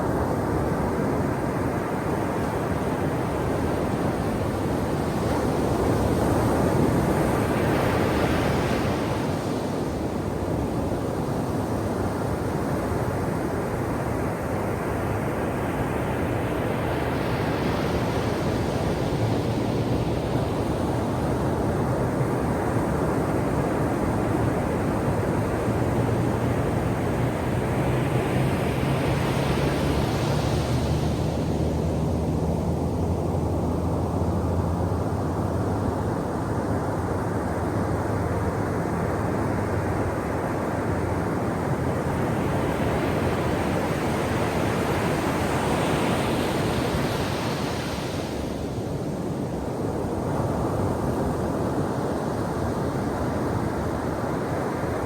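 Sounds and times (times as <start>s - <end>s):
ocean waves crashing: 39.4s - 49.3s.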